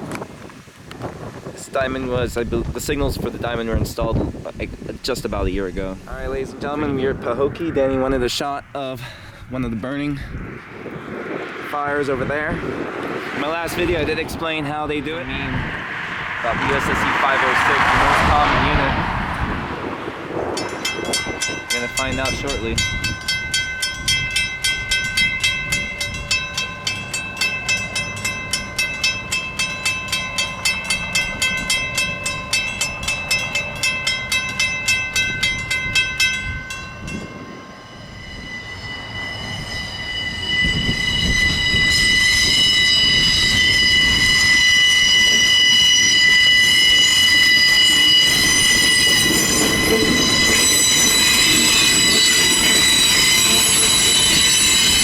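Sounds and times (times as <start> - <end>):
railroad crossing bell ringing: 13.3 - 19.1, 20.4 - 55.0
train wheels squealing: 37.6 - 55.0.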